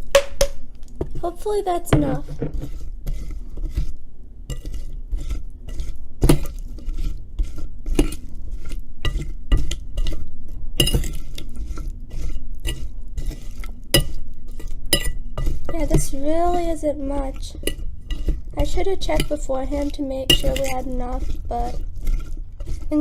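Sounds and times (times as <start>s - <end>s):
utensil clinking against dish: 14.0s - 16.7s, 17.3s - 22.8s.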